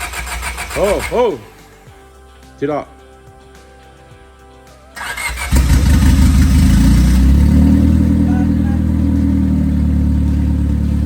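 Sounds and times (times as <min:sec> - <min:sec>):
engine running loudly: 0:05.5 - 0:11.0.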